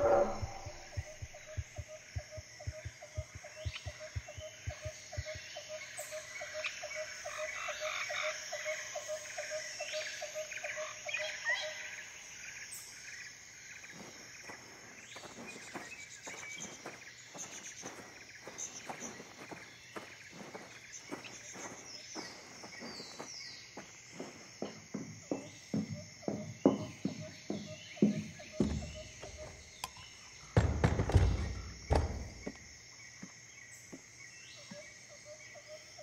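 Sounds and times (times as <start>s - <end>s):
soft low thumps: 0.0s - 5.6s
frog croaking: 0.0s - 9.6s.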